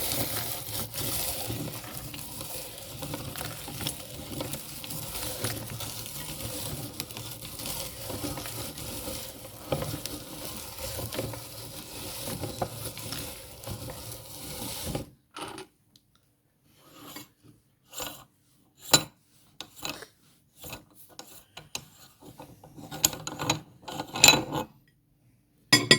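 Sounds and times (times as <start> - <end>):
meat grinder crunching: 0.0 - 15.0.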